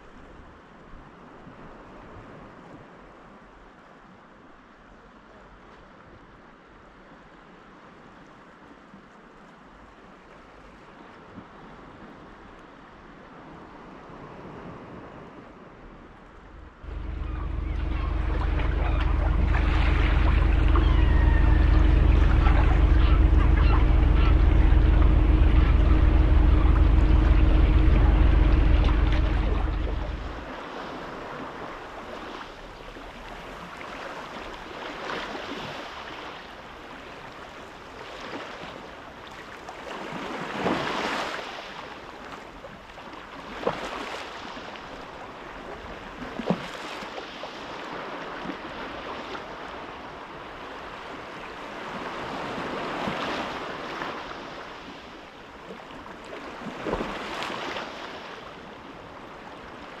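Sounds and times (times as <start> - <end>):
sea surf washing: 16.4 - 60.0.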